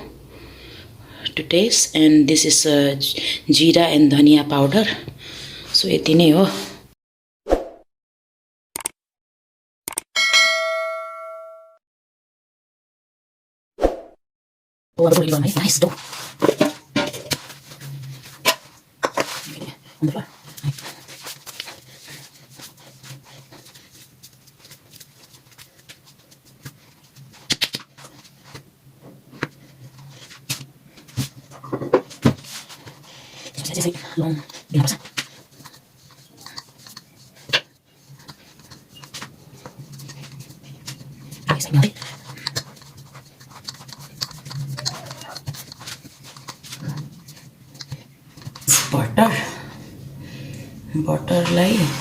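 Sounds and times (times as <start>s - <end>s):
low steady hum: 38.0s - 52.0s.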